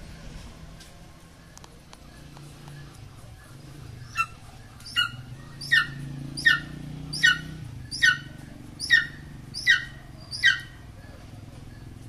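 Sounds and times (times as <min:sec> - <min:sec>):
bird squealing: 0:04.0 - 0:10.8.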